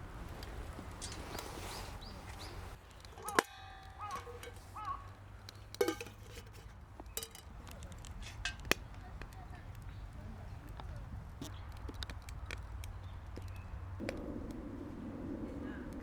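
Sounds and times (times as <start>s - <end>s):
low steady hiss: 13.1s - 16.0s.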